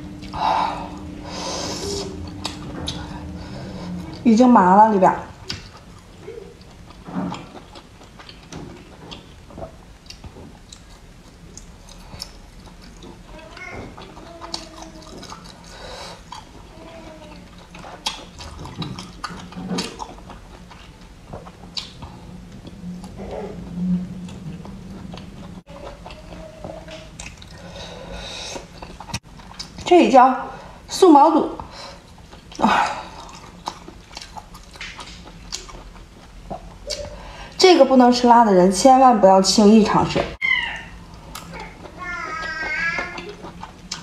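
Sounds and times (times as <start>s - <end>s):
person chewing food: 5.4s - 16.7s, 17.3s - 29.8s, 32.0s - 37.2s, 41.1s - 44.0s.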